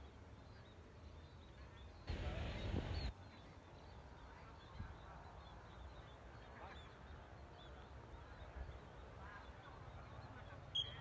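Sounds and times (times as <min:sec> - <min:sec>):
faint high chirps: 0:07.6 - 0:11.0.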